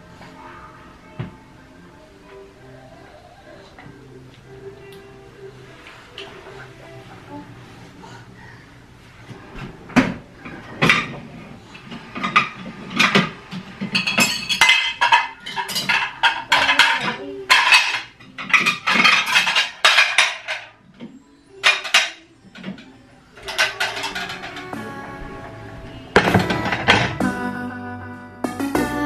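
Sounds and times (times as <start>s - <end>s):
dishes and cutlery clattering: 9.2s - 25.4s, 26.1s - 27.2s.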